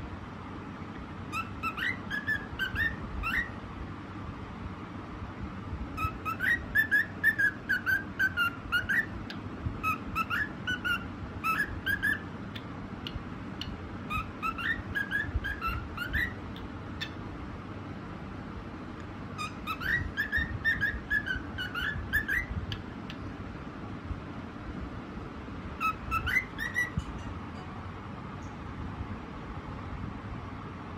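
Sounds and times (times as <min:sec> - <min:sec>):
low background noise: 0:00.0 - 0:30.9
cockatiel whistling a tune: 0:01.3 - 0:03.6, 0:06.0 - 0:09.2, 0:09.8 - 0:12.3, 0:13.6 - 0:16.4, 0:19.4 - 0:22.8, 0:25.8 - 0:27.3.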